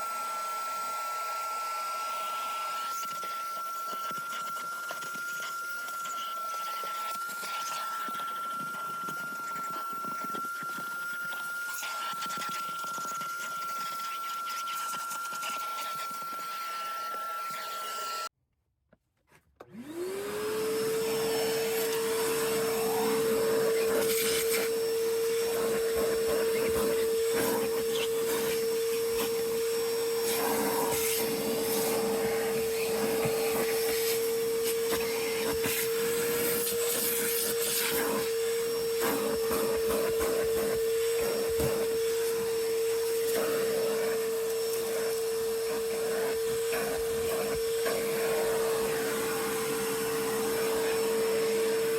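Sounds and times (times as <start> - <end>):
vacuum cleaner motor whine: 0.0 - 18.3, 19.6 - 51.9
vacuum nozzle scraping and knocking: 21.0 - 51.9.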